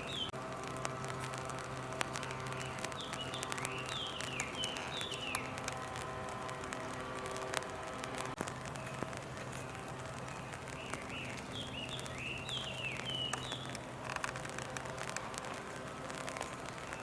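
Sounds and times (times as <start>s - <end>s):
bird chirping: 0.0s - 0.4s, 2.1s - 5.7s, 8.6s - 13.8s
small ticks: 0.0s - 17.0s
steady low hum: 0.0s - 17.0s.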